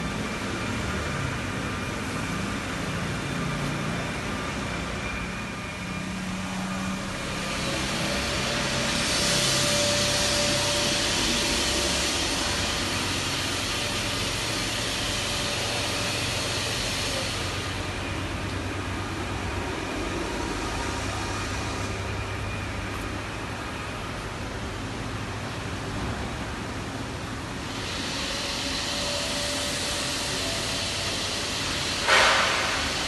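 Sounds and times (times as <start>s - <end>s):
hissing rush: 6.8s - 22.1s, 27.6s - 33.0s.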